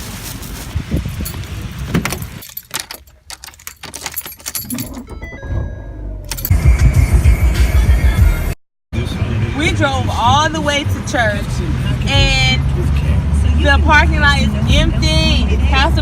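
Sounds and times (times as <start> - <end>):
light metallic jangling: 1.0 - 5.2.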